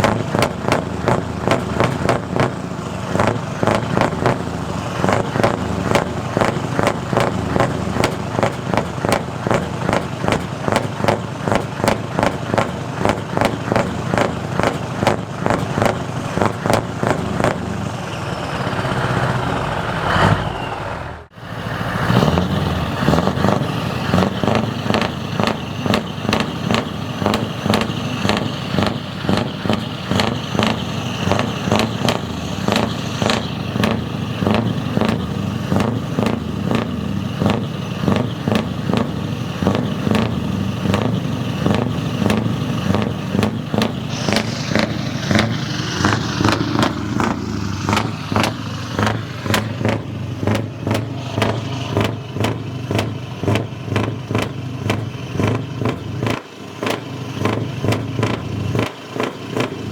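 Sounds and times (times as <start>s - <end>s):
diesel engine rumbling: 0.0s - 59.9s.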